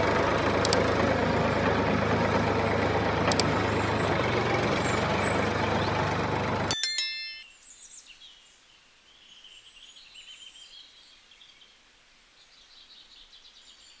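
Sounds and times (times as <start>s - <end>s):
short high ringing tone: 6.7s - 7.5s
faint birds chirping: 7.4s - 14.0s
quiet outdoor ambience: 7.4s - 14.0s.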